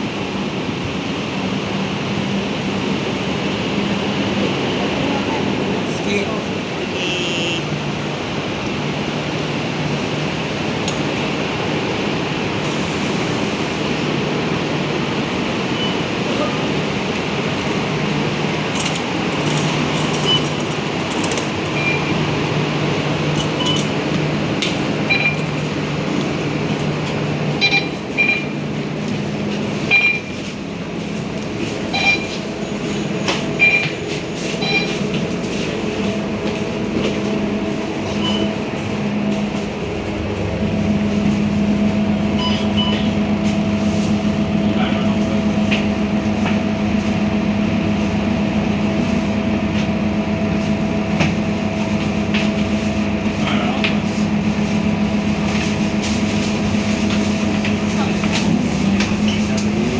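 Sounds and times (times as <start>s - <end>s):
bus engine running: 0.0s - 59.9s
short high beeps: 7.0s - 7.7s, 25.1s - 25.5s, 27.6s - 28.5s, 29.9s - 30.3s, 31.9s - 32.4s, 34.6s - 35.0s, 38.1s - 38.6s, 42.4s - 43.1s.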